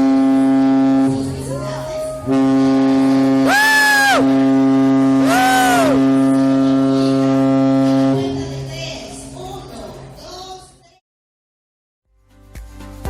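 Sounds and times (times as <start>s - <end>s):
ship's horn deep blast: 0.0s - 8.7s
short whoops: 3.5s - 4.2s, 5.3s - 6.0s.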